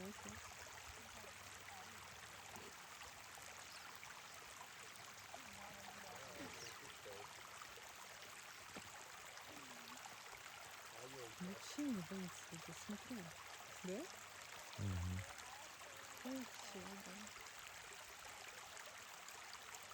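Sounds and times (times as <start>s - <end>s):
faint voices: 5.4s - 7.4s, 14.8s - 17.3s.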